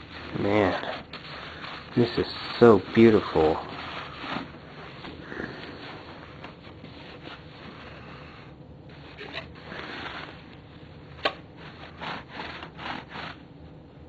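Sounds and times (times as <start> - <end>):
rubbing and rustling handling noise: 0.0 - 13.9.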